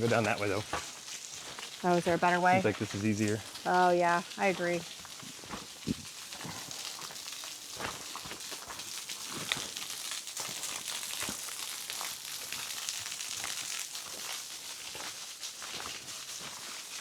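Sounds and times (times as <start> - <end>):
waterfall spray splashing on rock: 0.0 - 17.0
footsteps crunching on rock: 5.1 - 6.1.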